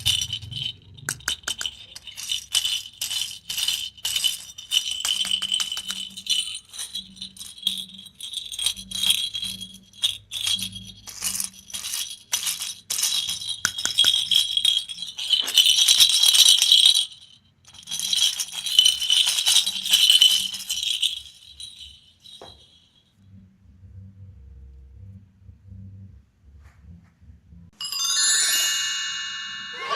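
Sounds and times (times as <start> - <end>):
candies rattling in plastic: 0.0 - 22.4.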